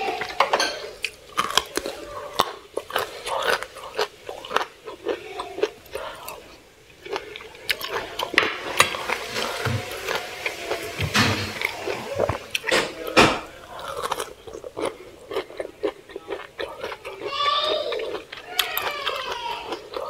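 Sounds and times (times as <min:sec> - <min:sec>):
chewing and biting food: 0:01.0 - 0:20.0
wet mouth noises: 0:09.4 - 0:12.8.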